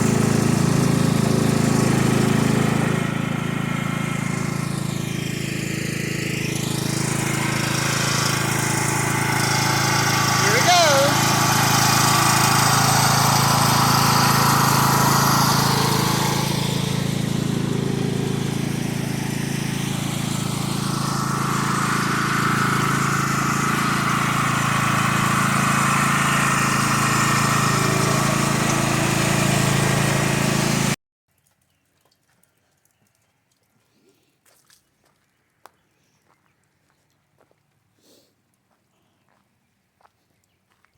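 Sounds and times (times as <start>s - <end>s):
engine humming: 0.0s - 31.0s.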